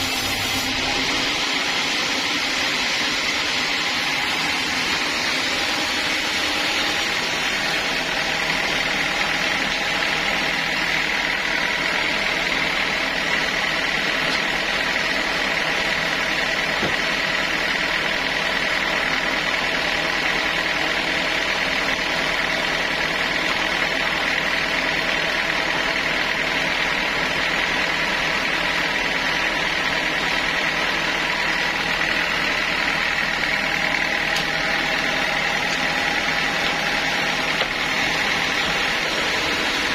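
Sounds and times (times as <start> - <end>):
high-pitched saw whine: 0.0 - 16.9
sawmill machinery drone: 0.0 - 39.9.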